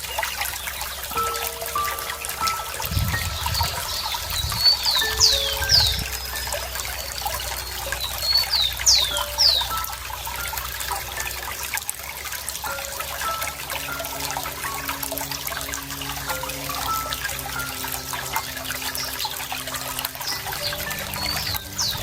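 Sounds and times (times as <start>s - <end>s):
water trickling: 0.0s - 22.0s
bird whistling downward notes: 1.1s - 10.5s.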